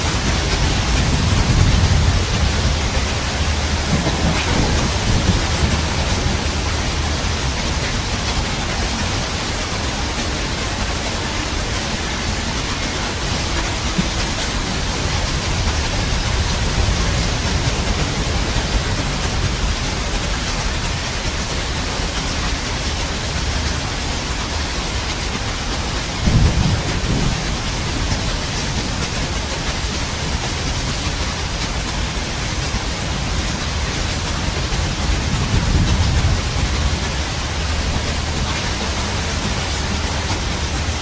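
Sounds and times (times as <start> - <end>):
rolling thunder: 0.0 - 9.6, 26.2 - 41.0
steady rain: 0.0 - 41.0.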